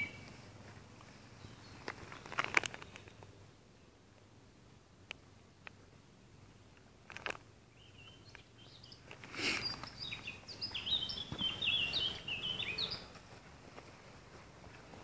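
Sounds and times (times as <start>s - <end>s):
songbird singing: 0.0s - 15.0s
brief rustle: 1.0s - 3.3s.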